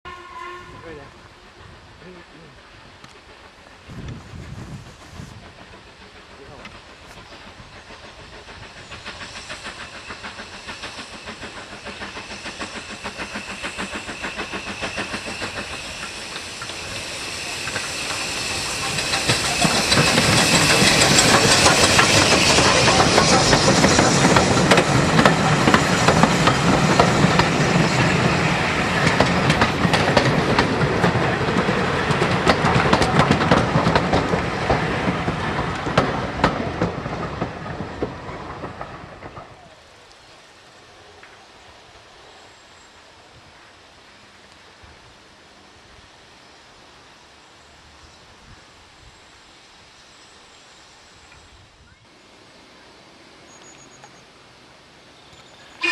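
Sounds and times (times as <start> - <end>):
steam hissing: 0.9 - 50.1, 55.6 - 55.9
train wheels clicking over rail joints: 2.8 - 40.1.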